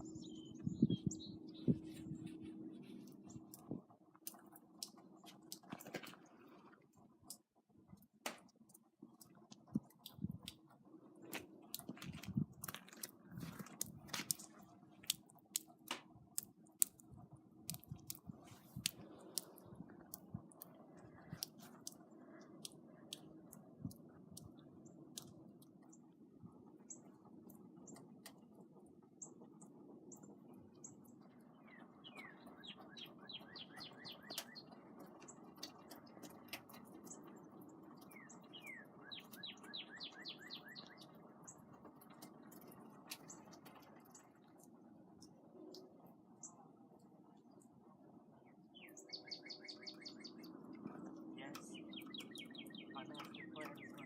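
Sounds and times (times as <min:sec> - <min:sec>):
sharp clicking and crunching: 0:07.2 - 0:24.5.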